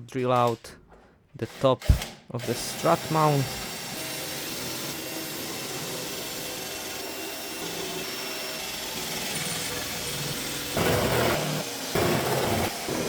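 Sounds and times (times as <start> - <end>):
electric drill boring into steel: 1.5 - 13.0.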